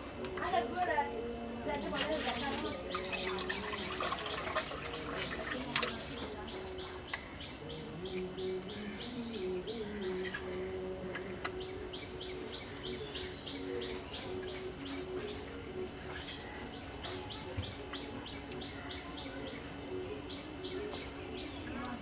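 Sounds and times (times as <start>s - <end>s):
steady low hum: 0.0s - 22.0s
bird chirping: 2.5s - 15.5s.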